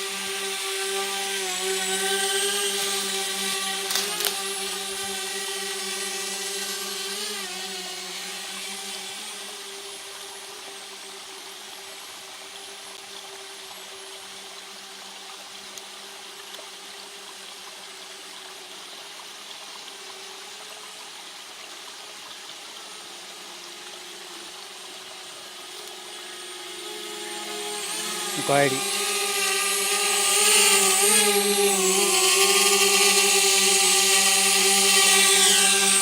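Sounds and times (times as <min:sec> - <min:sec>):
drone propellers humming: 0:23.9 - 0:36.0.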